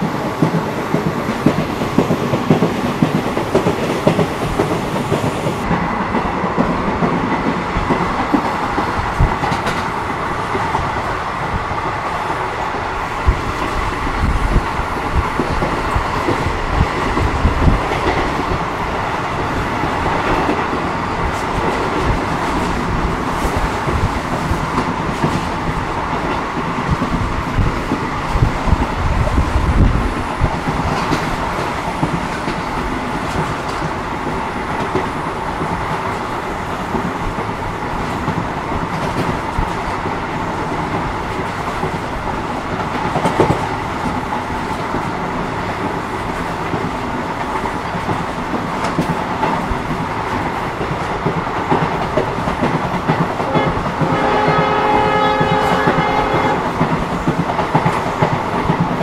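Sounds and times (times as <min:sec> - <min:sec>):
train wheels rumbling and rattling: 0:00.0 - 0:59.0.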